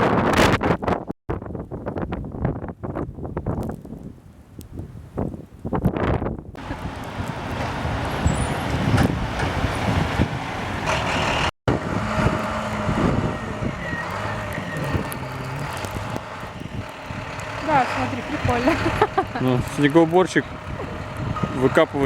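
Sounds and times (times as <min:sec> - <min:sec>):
heavy truck engine running: 0:06.6 - 0:22.0.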